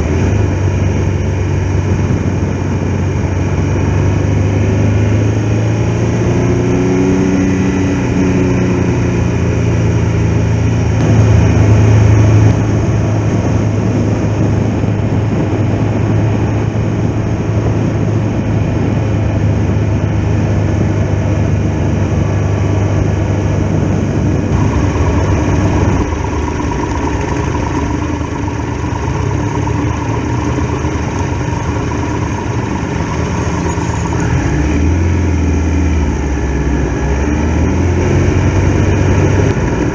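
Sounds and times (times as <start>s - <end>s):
motorcycle engine running: 0.0s - 14.4s, 24.2s - 39.9s
steady rushing noise: 11.0s - 13.2s, 24.5s - 36.4s.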